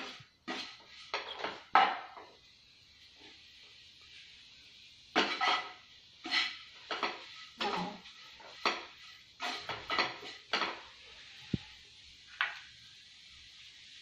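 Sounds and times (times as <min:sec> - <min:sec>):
ladle scraping a wok: 0:00.0 - 0:12.0.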